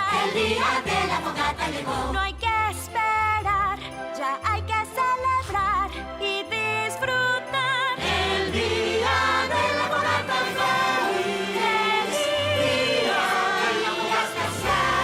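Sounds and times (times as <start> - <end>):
choir singing christmas song: 0.0 - 2.6, 7.6 - 15.0
orchestral accompaniment: 6.1 - 15.0.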